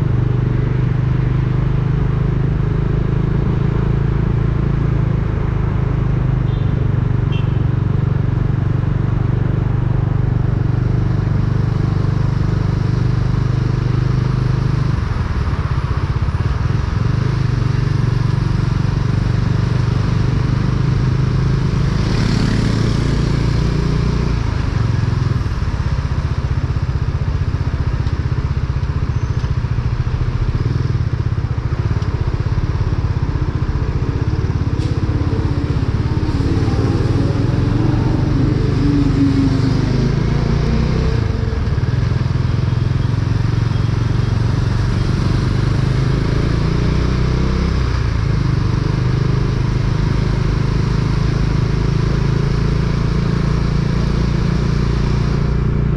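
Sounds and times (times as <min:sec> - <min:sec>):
motorcycle engine running: 0:00.0 - 0:55.9
wind and road noise: 0:00.0 - 0:55.9.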